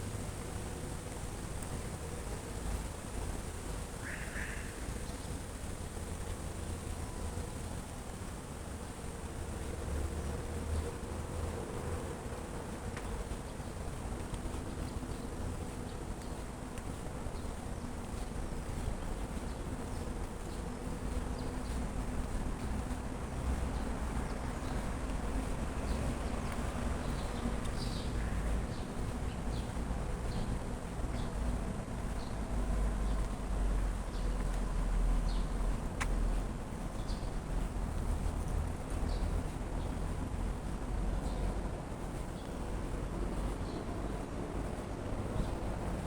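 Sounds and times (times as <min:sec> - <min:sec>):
light ticks: 0:12.9 - 0:32.3, 0:33.0 - 0:43.8.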